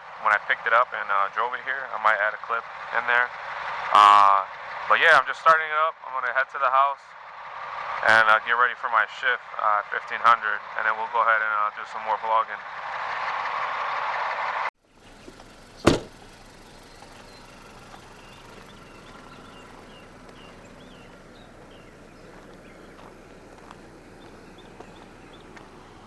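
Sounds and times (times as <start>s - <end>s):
diesel truck engine running: 14.9s - 26.0s
faint bird chirps: 15.0s - 26.0s
sharp bang: 15.2s - 16.4s.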